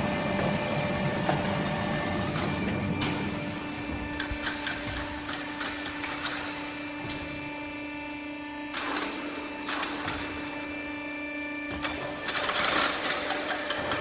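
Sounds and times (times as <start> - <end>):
strapping machine humming: 0.0 - 10.6.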